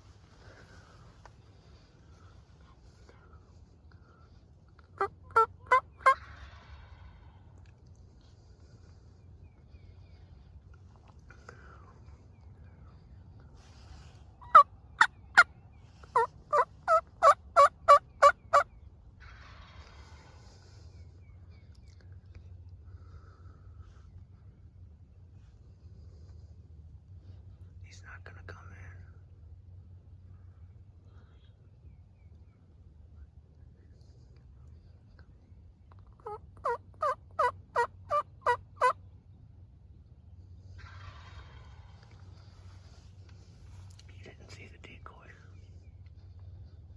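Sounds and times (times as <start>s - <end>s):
soft rustle: 0.0s - 3.8s, 13.5s - 14.4s, 40.8s - 46.9s
turkey yelps: 5.0s - 6.3s, 14.4s - 15.5s, 16.1s - 18.7s, 36.1s - 39.0s.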